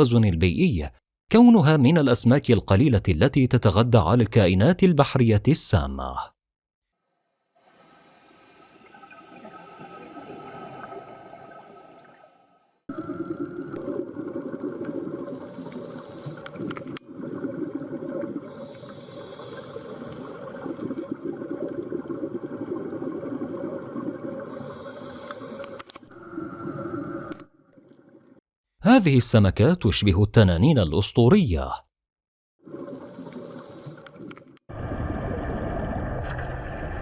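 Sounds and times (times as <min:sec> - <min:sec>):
underwater water churning: 0:07.6 - 0:27.4, 0:32.6 - 0:37.0
underwater soft rush: 0:08.6 - 0:28.3, 0:32.7 - 0:37.0.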